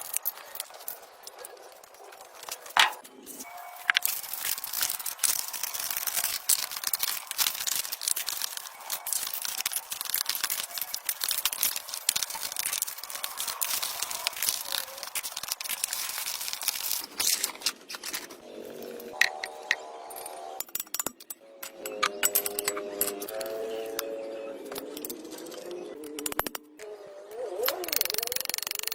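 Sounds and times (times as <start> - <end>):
small clicks: 27.6 - 28.9.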